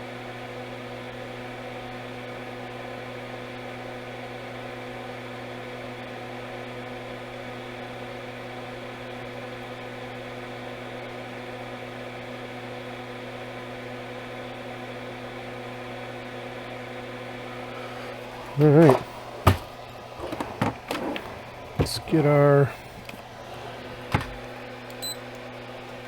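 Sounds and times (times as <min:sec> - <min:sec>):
electrical hum and whir: 0:11.6 - 0:26.0.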